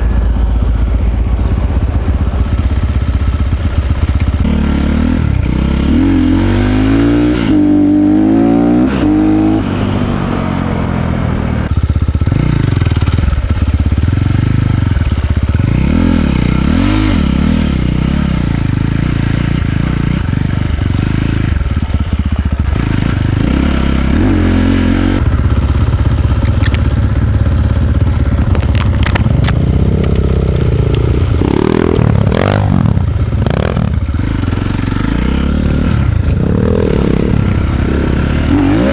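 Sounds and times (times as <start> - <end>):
dirt bike engine revving: 3.0 - 38.9.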